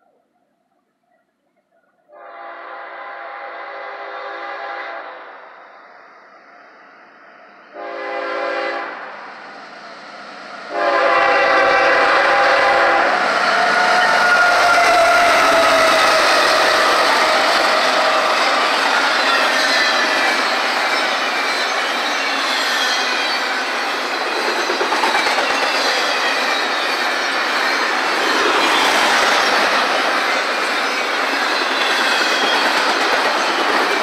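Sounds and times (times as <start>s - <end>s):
locomotive air horn blasts: 2.1s - 5.4s, 7.7s - 9.0s, 10.7s - 15.4s
train wheels roaring on rails: 2.3s - 34.0s.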